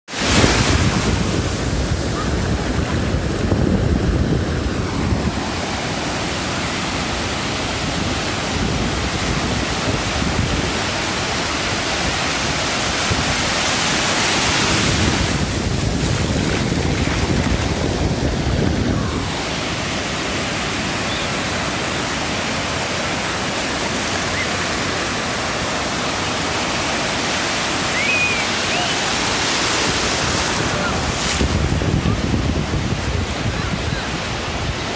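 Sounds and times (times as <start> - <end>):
surf washing up beach: 0.1 - 34.9
waves crashing: 0.1 - 34.9.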